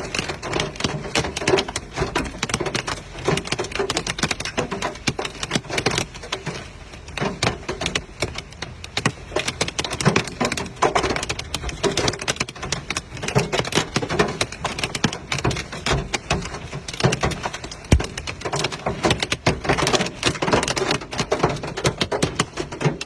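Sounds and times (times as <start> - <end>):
hailstones striking hard surface: 0.0 - 23.0.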